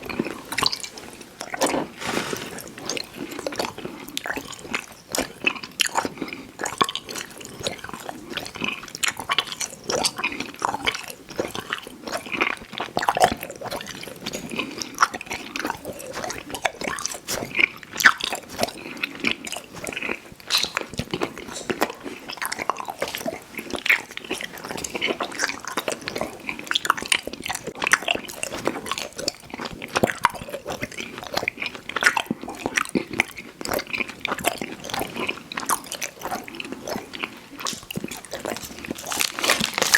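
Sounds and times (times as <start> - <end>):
chewing candy with wet smacking: 0.0 - 39.9.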